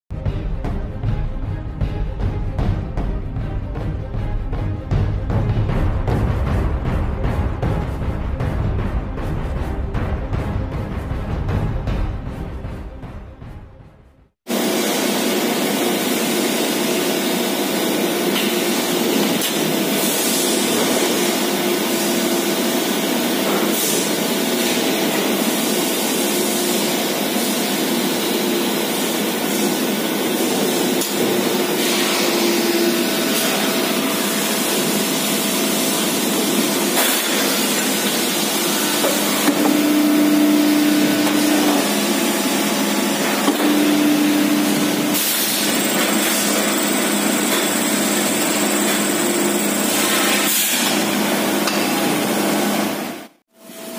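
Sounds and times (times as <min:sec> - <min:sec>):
factory machinery hiss and hum: 0:14.5 - 0:53.9.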